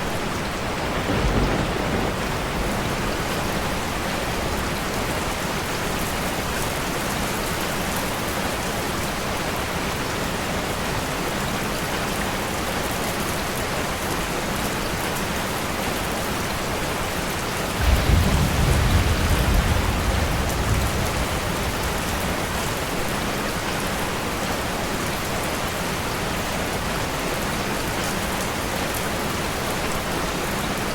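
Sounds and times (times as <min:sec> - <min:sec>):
steady rain falling: 0:00.0 - 0:30.9
low roll of thunder: 0:00.9 - 0:04.0, 0:17.7 - 0:23.7.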